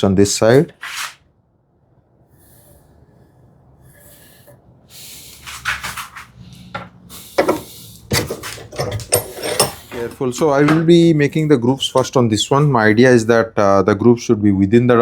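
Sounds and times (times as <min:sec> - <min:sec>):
wood rubbing and scraping: 0:05.4 - 0:11.0.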